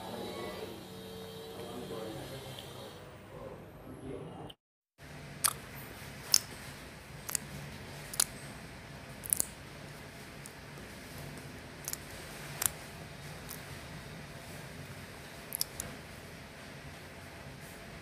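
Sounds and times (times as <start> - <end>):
person chewing food: 5.4 - 5.6, 7.2 - 8.4, 9.2 - 9.6, 11.8 - 12.8, 15.5 - 15.9
wet mouth clicks and smacks: 5.4 - 5.6, 8.1 - 8.3, 9.2 - 9.6, 15.5 - 15.9.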